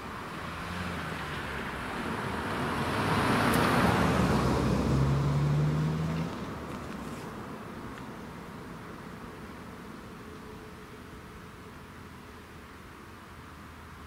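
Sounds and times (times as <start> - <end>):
motor vehicle driving past: 0.4 - 6.6.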